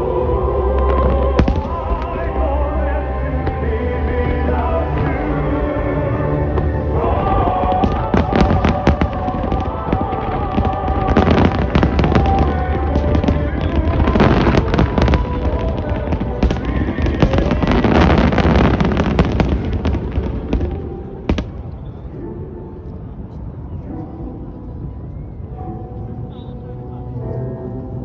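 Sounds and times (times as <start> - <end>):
low rumble: 0.0 - 22.8
music playing: 0.0 - 28.0
firework shells bursting and crackling: 1.4 - 2.3, 7.0 - 21.9.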